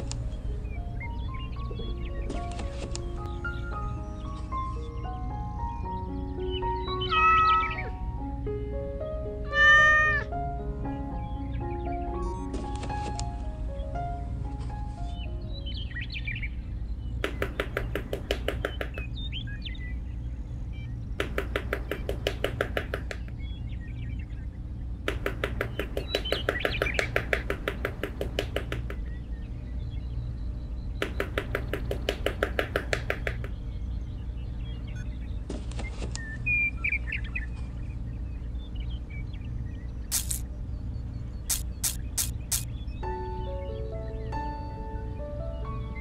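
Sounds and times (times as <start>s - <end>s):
steady low hum: 0.0s - 7.0s, 10.2s - 46.0s
birds chirping: 0.0s - 46.0s
rapid even clicking: 17.2s - 19.2s, 21.2s - 23.3s, 25.1s - 29.2s, 31.0s - 33.6s, 41.5s - 42.7s.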